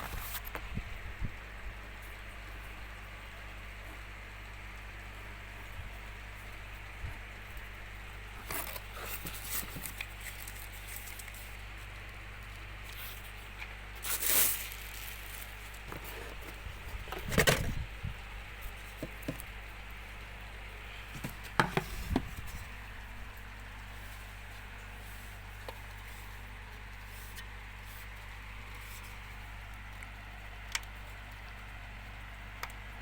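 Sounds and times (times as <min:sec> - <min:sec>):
table fan motor humming: 0:05.6 - 0:33.0
handling clicks and rustles: 0:08.2 - 0:31.6.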